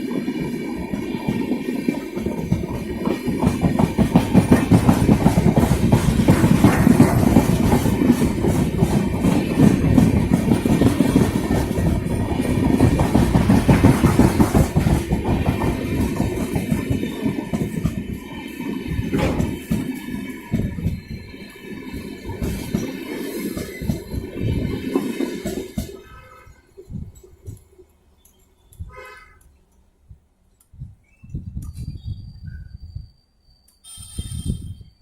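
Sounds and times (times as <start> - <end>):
train wheels clattering over rails: 0.0 - 28.5.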